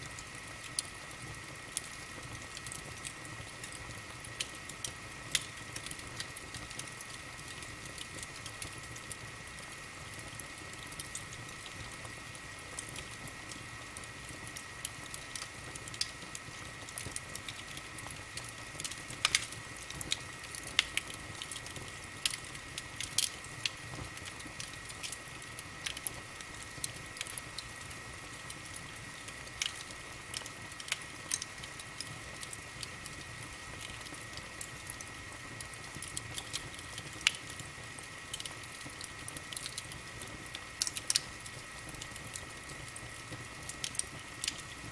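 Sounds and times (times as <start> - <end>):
wood fire crackling: 0.0 - 44.9.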